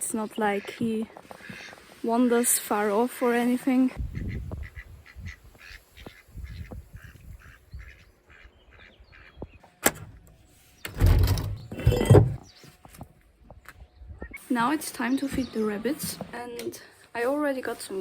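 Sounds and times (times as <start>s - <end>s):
ducks quacking softly: 0.4s - 1.9s, 4.0s - 9.6s.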